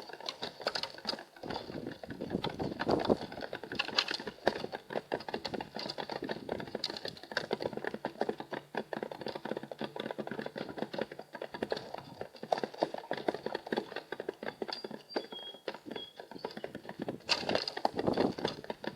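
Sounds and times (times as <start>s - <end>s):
faint high whistles: 15.1s - 16.2s.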